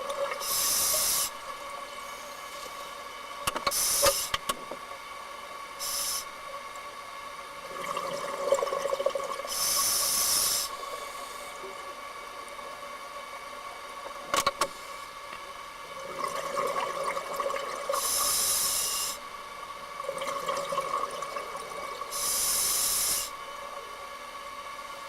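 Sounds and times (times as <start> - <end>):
steady hum: 0.0 - 25.0
exhaled bubbles rushing: 7.6 - 9.5, 16.0 - 18.0, 20.0 - 22.1
diver breathing through regulator: 9.5 - 11.6.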